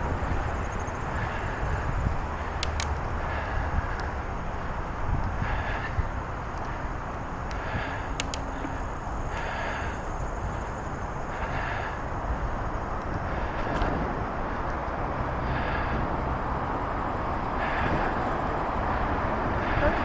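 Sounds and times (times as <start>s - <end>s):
bicycle rolling: 0.0s - 20.0s
wind on microphone: 0.0s - 20.0s.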